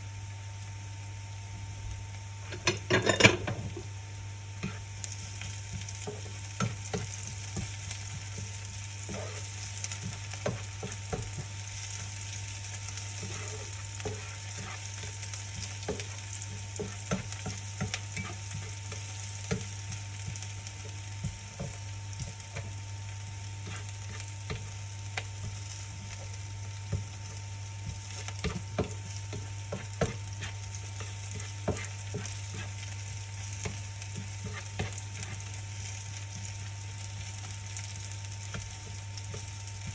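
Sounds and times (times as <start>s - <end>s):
food sizzling in frying pan: 0.0s - 39.9s
steady low hum: 0.0s - 39.9s
utensil scraping pan: 2.4s - 3.8s, 23.6s - 24.7s, 28.1s - 32.8s.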